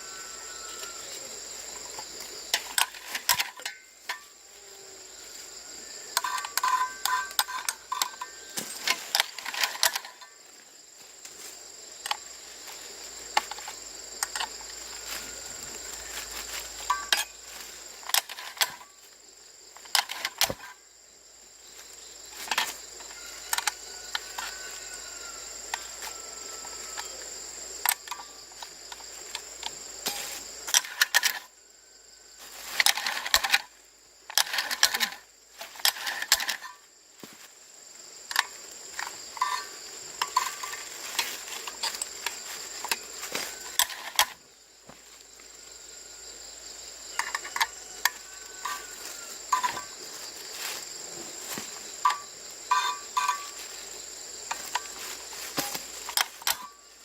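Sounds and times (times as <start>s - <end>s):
insects chirring: 0.0s - 57.0s
metal tools clicking and clinking: 2.5s - 4.3s, 6.2s - 10.4s, 52.0s - 53.6s, 55.5s - 56.8s.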